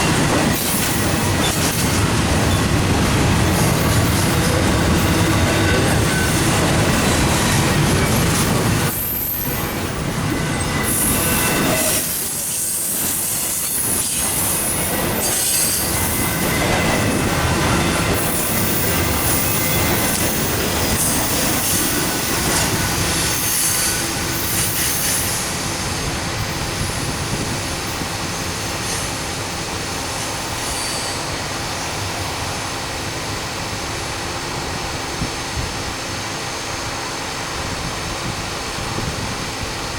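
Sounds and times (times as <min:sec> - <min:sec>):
train wheel squeal: 0:00.0 - 0:32.6
train wheels clattering on rails: 0:00.0 - 0:36.1.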